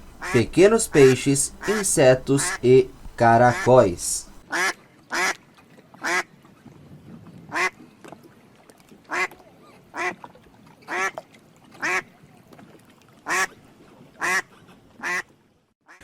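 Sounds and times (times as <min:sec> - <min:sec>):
duck quacking: 0:00.0 - 0:05.3.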